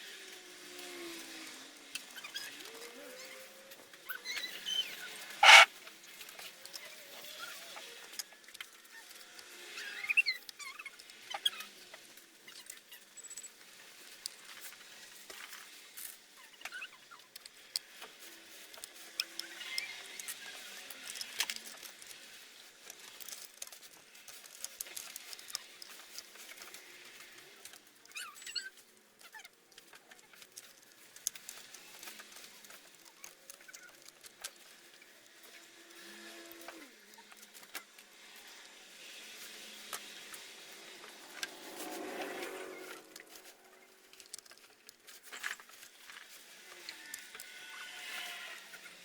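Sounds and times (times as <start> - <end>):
faint high squeaks: 2.1 - 5.7, 28.1 - 29.4.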